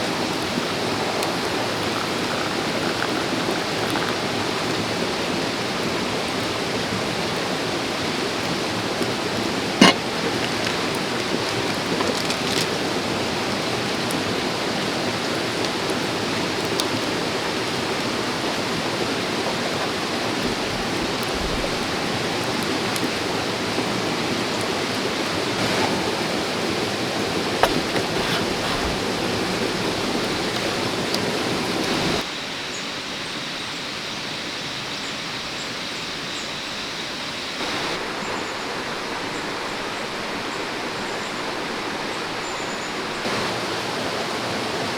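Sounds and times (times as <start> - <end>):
stream flowing: 0.0 - 32.3.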